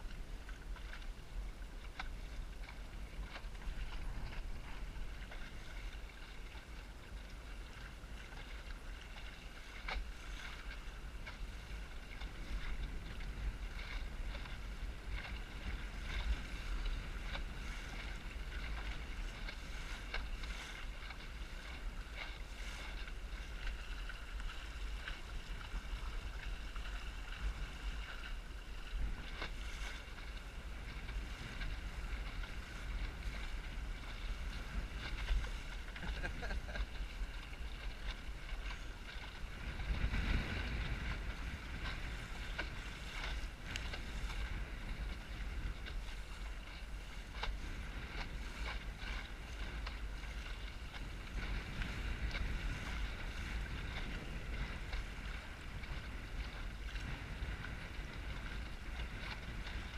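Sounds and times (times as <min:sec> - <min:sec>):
water rushing against hull: 0:00.0 - 0:59.9
wind buffeting microphone: 0:00.0 - 0:59.9
water slaps: 0:29.0 - 0:46.1.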